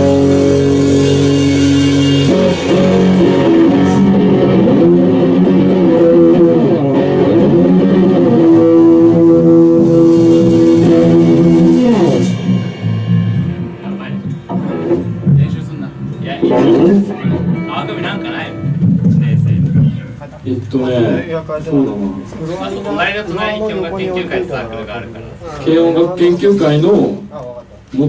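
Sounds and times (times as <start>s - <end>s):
electric guitar rock: 0.0s - 20.2s
bass guitar: 0.0s - 22.9s.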